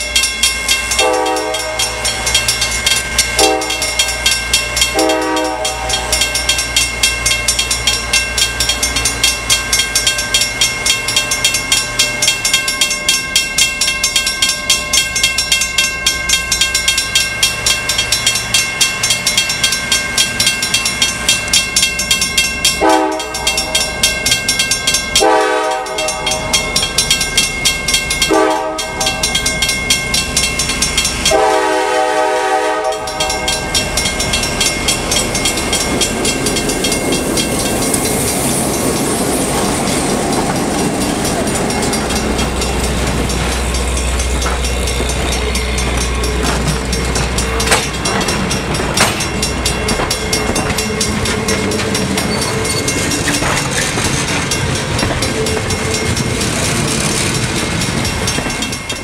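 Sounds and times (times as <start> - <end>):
crossing signal bell ringing: 0.0 - 59.0
train wheels clicking over rail joints: 0.0 - 59.0
locomotive air horn: 1.0 - 2.2, 3.4 - 4.0, 5.0 - 6.1, 22.8 - 23.9, 25.2 - 26.6, 28.3 - 29.2, 31.3 - 33.4.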